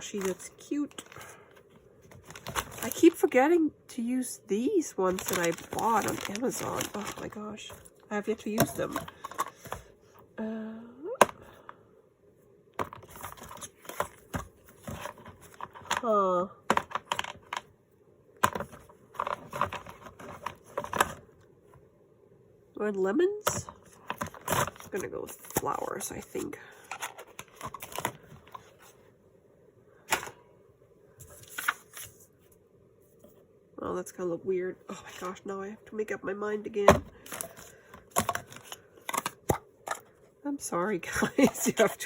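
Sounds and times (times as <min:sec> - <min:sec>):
paper and tape rustling: 0:00.0 - 0:01.3, 0:02.1 - 0:03.5, 0:04.6 - 0:09.7
woman humming: 0:10.4 - 0:11.2.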